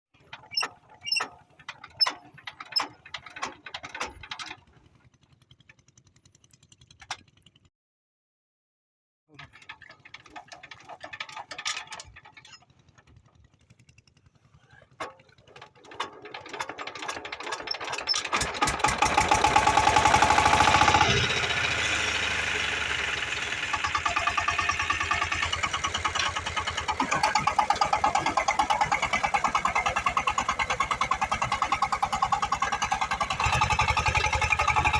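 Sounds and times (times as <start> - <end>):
clanks and knocks: 0.2 - 5.8, 9.4 - 13.6, 14.9 - 21.0, 23.8 - 34.9
diesel engine running: 16.3 - 34.9.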